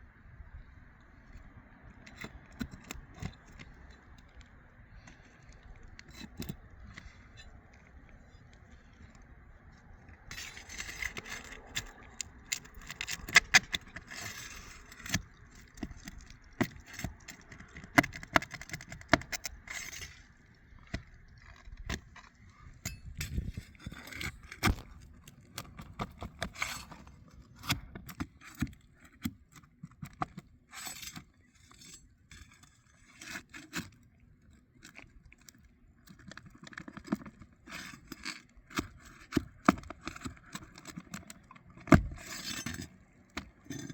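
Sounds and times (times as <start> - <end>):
scraping and sharp clicks: 10.3 - 33.9
metal tool prying up roof shingles: 12.5 - 20.2, 41.8 - 43.9.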